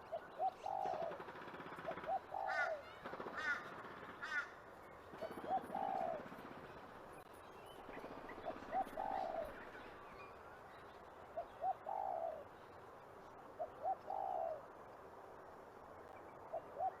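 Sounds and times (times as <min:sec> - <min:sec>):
pigeon cooing: 0:00.0 - 0:01.2, 0:01.8 - 0:02.8, 0:05.2 - 0:06.3, 0:08.5 - 0:09.6, 0:11.6 - 0:12.5, 0:13.6 - 0:14.6.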